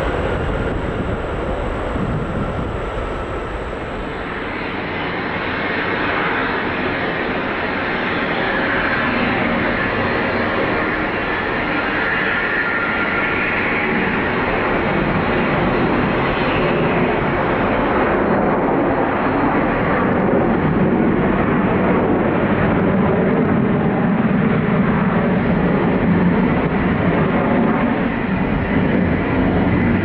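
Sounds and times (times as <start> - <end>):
jet airliner engines rushing: 0.0 - 30.0.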